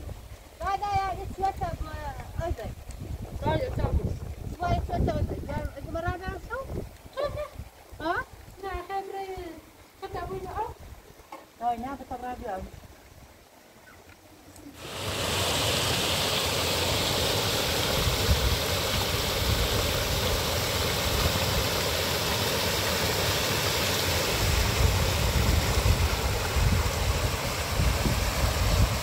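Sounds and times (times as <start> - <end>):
heavy rain falling: 14.8 - 29.0.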